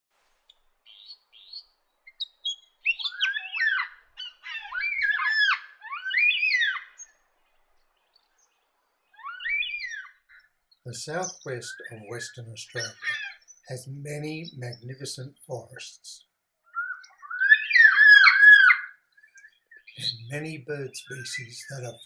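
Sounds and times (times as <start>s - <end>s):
bird singing whistled notes: 0.9s - 5.3s, 16.7s - 22.0s.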